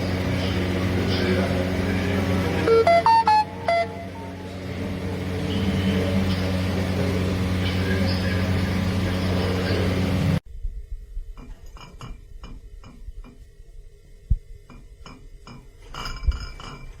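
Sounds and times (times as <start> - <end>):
loud steady noise: 0.0 - 11.2.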